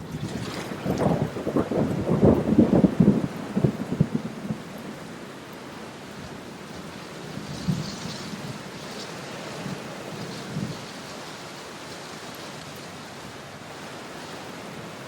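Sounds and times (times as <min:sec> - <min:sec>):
low rumbling crackle: 0:00.0 - 0:05.0, 0:06.7 - 0:13.0.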